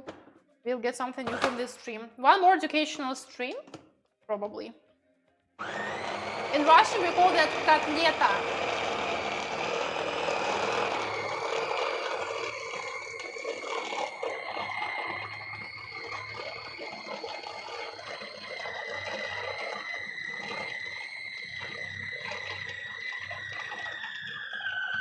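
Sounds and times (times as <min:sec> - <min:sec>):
electric blender motor whining: 0:01.2 - 0:01.8, 0:05.6 - 0:25.0.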